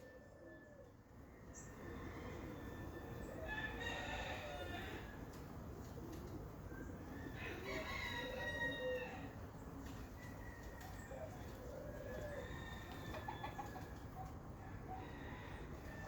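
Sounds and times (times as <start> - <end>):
rooster crowing: 2.3 - 5.2, 7.3 - 9.4.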